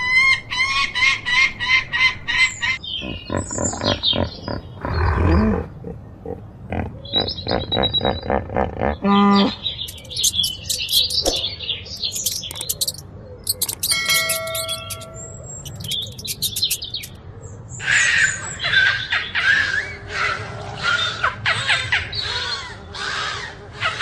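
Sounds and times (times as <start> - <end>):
loud low-pitched bird call: 0.0 - 11.0
birds chirping: 0.0 - 24.0
whistled bird notes: 9.3 - 17.2.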